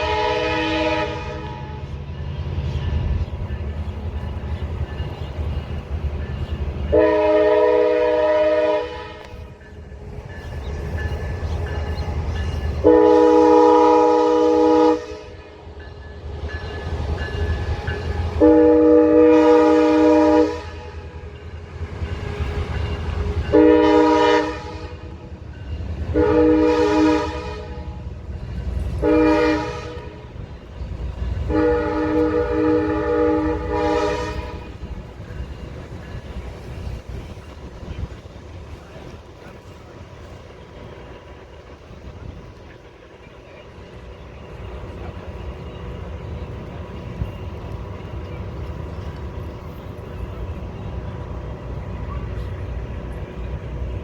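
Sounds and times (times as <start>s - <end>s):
locomotive horn blasts: 0.0s - 2.0s, 6.8s - 9.6s, 12.8s - 15.7s, 17.6s - 21.8s, 22.4s - 25.3s, 26.0s - 28.1s, 28.8s - 30.4s, 31.4s - 35.0s
train rumble: 0.0s - 54.0s.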